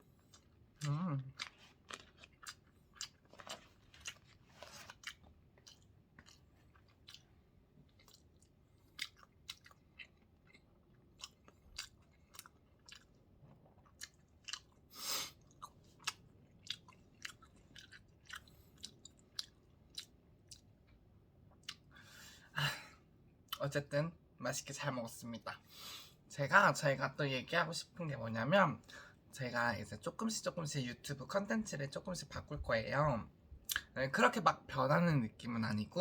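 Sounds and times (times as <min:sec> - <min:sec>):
person chewing food: 0:00.0 - 0:21.9.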